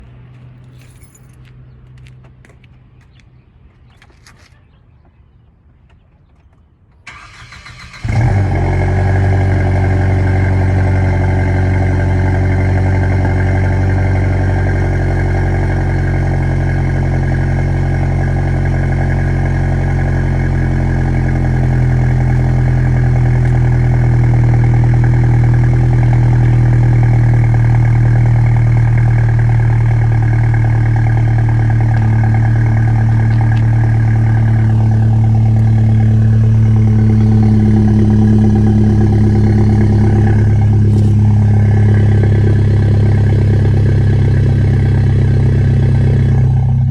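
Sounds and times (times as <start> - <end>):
engine cranking: 6.5 - 8.4
car engine idling: 7.1 - 46.9.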